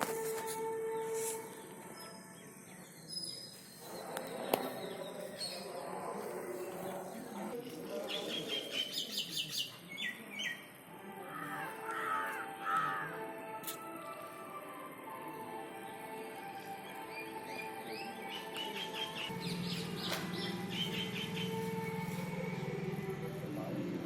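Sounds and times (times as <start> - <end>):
birds calling and singing: 2.0 - 10.7, 16.8 - 22.7.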